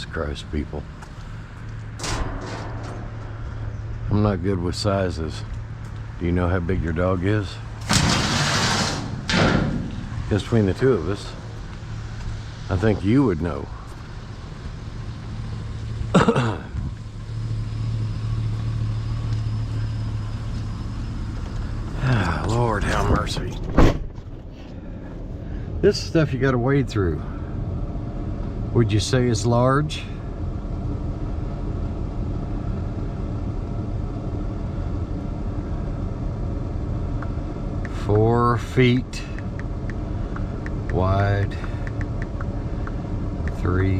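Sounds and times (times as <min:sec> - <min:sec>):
vehicle engine idling: 0:00.0 - 0:23.6, 0:24.2 - 0:43.9
car rumble from inside cabin: 0:09.8 - 0:43.9.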